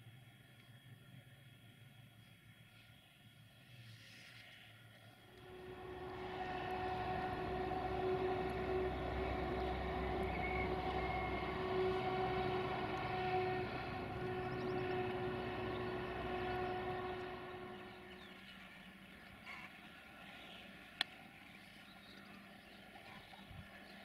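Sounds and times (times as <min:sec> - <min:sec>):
low rumble: 0:05.2 - 0:18.6
train pitched tone: 0:05.2 - 0:19.7.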